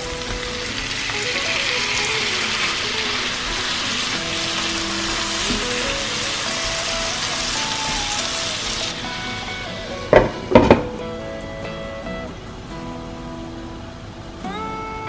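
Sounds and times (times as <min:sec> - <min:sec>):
tomatoes sizzling in hot oil: 0:00.0 - 0:11.0
light background music: 0:00.0 - 0:15.0.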